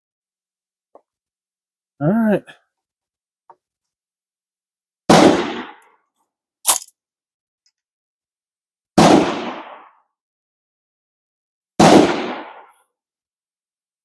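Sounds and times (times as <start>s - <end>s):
gunshots with echo: 5.1s - 5.8s, 9.0s - 9.9s, 11.8s - 12.8s.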